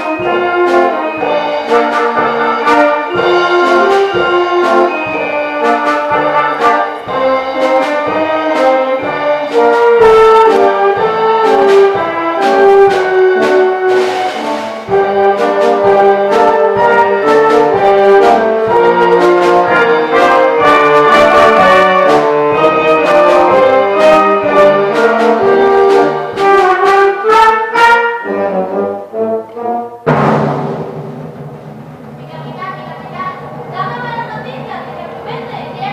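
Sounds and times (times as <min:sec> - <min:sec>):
loud struck chord: 0:00.0 - 0:26.9
brass melody: 0:00.0 - 0:31.5
percussion strokes: 0:00.0 - 0:35.9.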